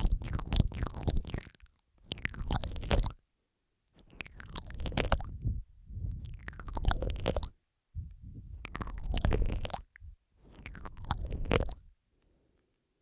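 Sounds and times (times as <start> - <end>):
wet mouth smacking and clicking: 0.0 - 3.2, 4.0 - 11.9
deep microphone rumble: 4.6 - 11.9.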